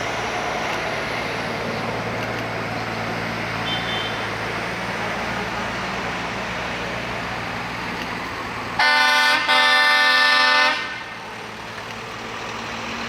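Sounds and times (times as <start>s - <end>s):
vehicles rumbling: 0.0s - 13.0s
truck horn blasts: 3.6s - 4.3s, 8.8s - 11.1s.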